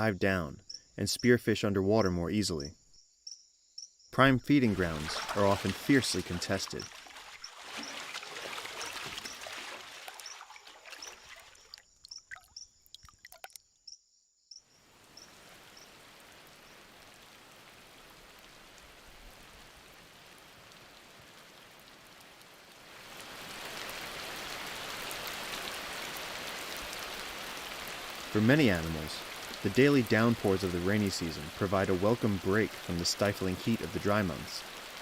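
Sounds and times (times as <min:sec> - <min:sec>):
rain falling in forest: 0:04.2 - 0:11.9, 0:14.7 - 0:35.0.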